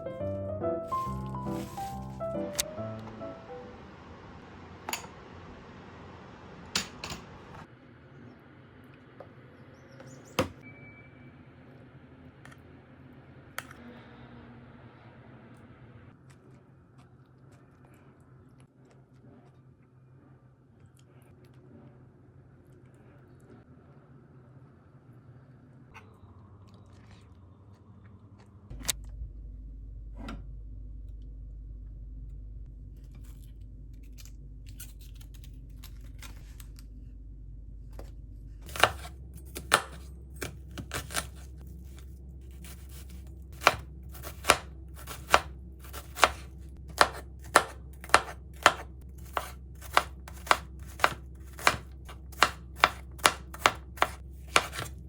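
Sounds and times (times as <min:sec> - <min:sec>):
steady low hum: 0:24.6 - 0:55.0
knife chopping on cutting board: 0:38.7 - 0:41.5, 0:42.6 - 0:55.0.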